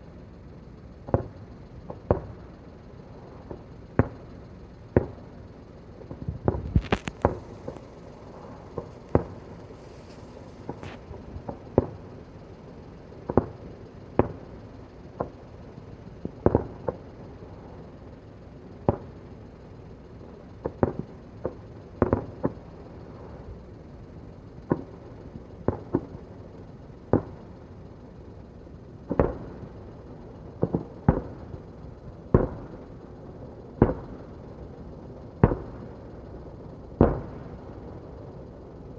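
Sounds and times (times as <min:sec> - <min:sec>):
fireworks bangs with echo: 0:06.1 - 0:12.0, 0:20.6 - 0:22.7, 0:32.3 - 0:32.8, 0:33.8 - 0:34.3, 0:37.0 - 0:37.8.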